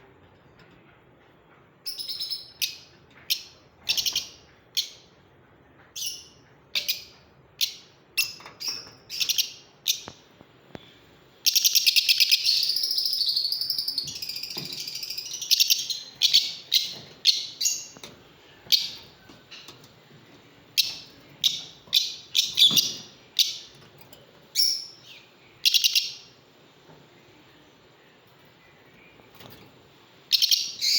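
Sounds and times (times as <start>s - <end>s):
lovebirds chirping: 1.8s - 5.1s, 5.9s - 30.9s.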